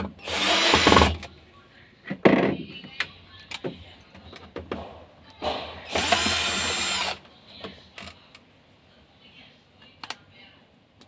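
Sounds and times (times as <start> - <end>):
power drill whirring: 0.2 - 1.2, 5.9 - 7.2.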